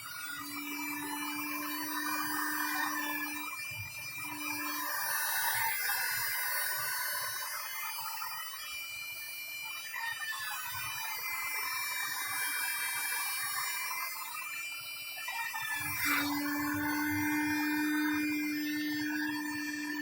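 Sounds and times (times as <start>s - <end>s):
heat gun blowing air: 0.0s - 5.9s, 15.8s - 20.0s.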